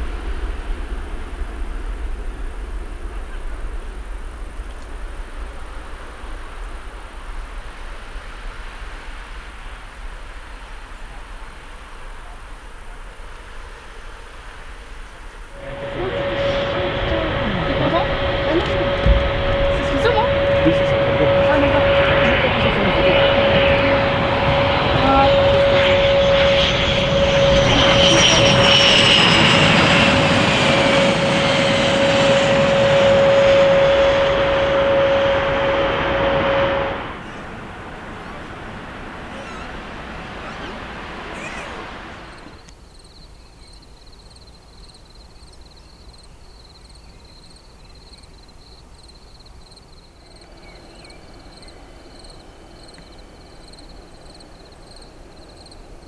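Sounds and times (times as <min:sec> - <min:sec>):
jet engines rushing rumble: 0:00.0 - 0:42.7, 0:50.1 - 0:56.0
low buffeting rumble: 0:15.2 - 0:42.4.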